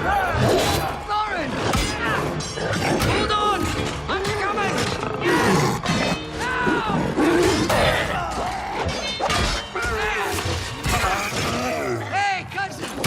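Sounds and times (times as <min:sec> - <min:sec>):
orchestral music: 0:00.0 - 0:13.0
shouted cries and snarls: 0:00.0 - 0:13.0.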